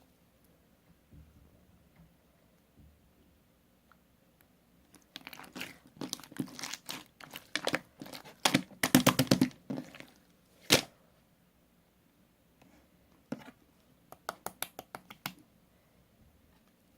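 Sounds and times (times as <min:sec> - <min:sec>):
crinkling and crumpling: 0:04.9 - 0:10.9.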